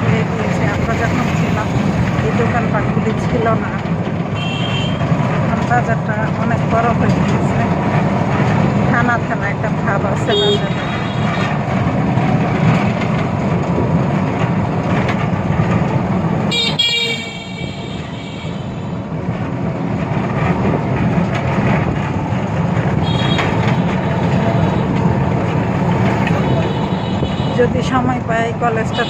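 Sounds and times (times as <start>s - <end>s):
auto-rickshaw engine rumble: 0.0s - 29.0s
horn tooting: 4.3s - 5.1s, 10.2s - 11.6s, 16.5s - 18.9s, 23.0s - 25.0s, 26.2s - 27.8s.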